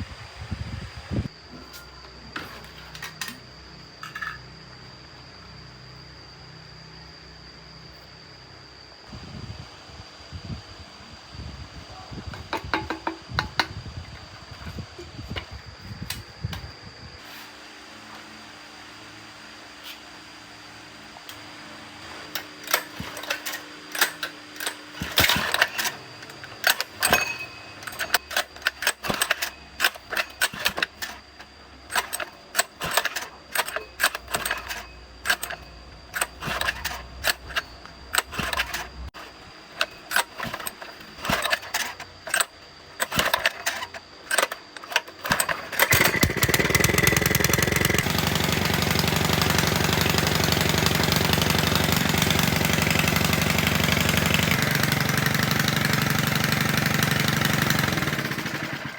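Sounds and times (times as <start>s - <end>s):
water pump engine running: 45.3s - 58.9s.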